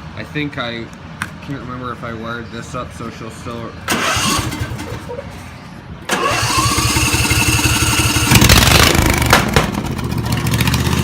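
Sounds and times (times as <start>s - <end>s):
engine starter cranking: 3.9s - 5.0s, 6.1s - 9.0s
lawn tractor engine running: 3.9s - 5.0s, 6.1s - 11.0s.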